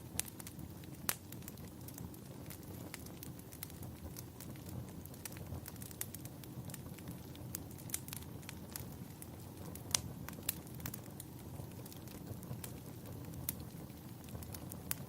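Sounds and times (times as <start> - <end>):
fire crackling and popping: 0.0 - 15.0
fire low rumble: 0.0 - 15.0.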